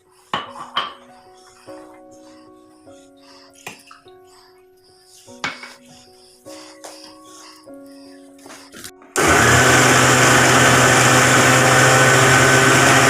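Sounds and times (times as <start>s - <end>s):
electric blender running: 9.2s - 13.0s.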